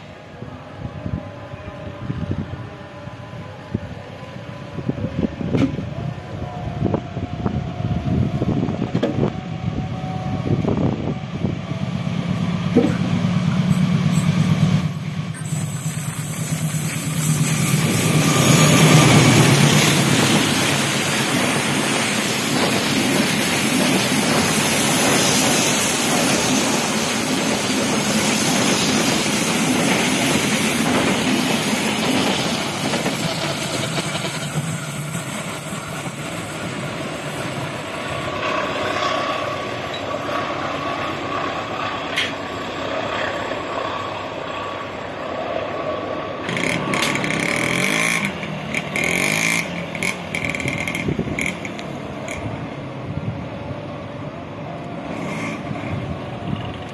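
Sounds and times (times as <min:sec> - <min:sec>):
locomotive hum: 0:00.0 - 0:56.9
train wheels rushing on rails: 0:01.8 - 0:56.9.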